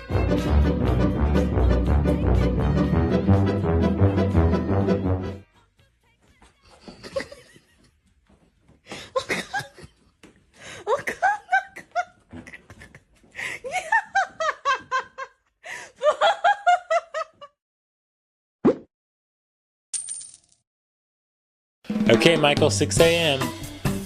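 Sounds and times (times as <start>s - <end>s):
person laughing: 6.7s - 8.0s, 8.9s - 17.6s.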